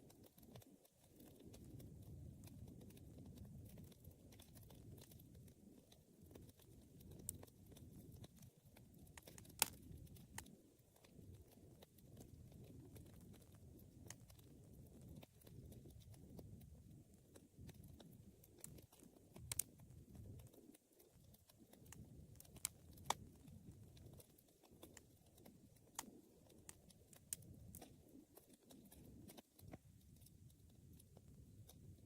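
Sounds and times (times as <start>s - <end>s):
low rumble of burning fire: 0.0s - 32.0s
wood popping and snapping: 9.2s - 10.5s.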